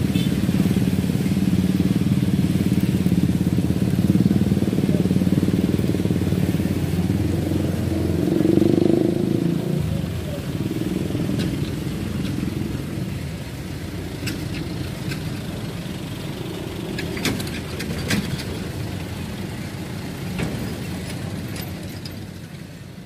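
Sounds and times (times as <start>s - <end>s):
train rumbling: 9.3s - 23.0s.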